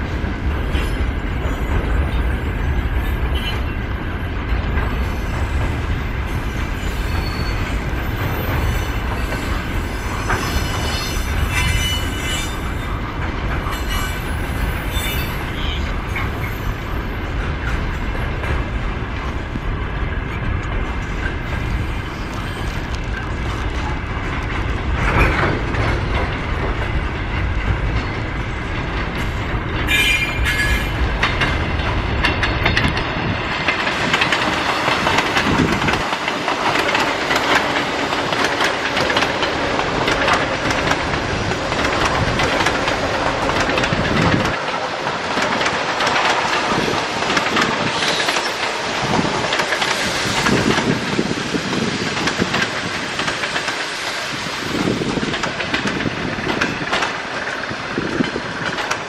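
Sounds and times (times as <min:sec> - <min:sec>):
electric train rushing past: 0:00.0 - 0:59.0
freight train wagons rumbling: 0:00.0 - 0:59.0
thin wheel squeal: 0:06.8 - 0:07.8, 0:09.8 - 0:12.7
clacking over rail joints: 0:17.3 - 0:59.0.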